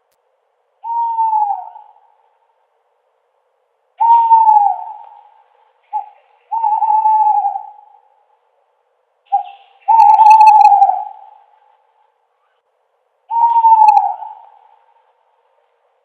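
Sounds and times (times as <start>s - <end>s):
owl hooting: 0.8s - 2.5s, 4.0s - 8.3s, 9.3s - 11.8s, 13.3s - 15.2s.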